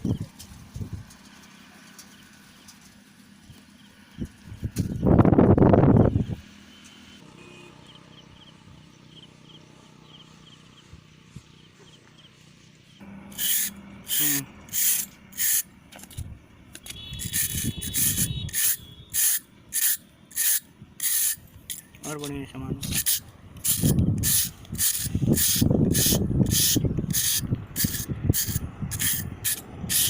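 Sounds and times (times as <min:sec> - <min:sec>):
hand tool scraping concrete: 0:13.3 - 0:16.2, 0:17.2 - 0:30.0.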